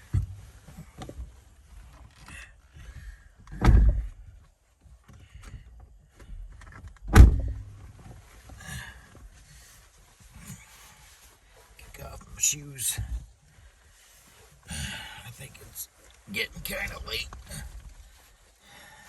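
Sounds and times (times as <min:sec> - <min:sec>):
dull thumps: 0:03.5 - 0:04.2, 0:07.1 - 0:07.9
rustling: 0:04.0 - 0:19.0.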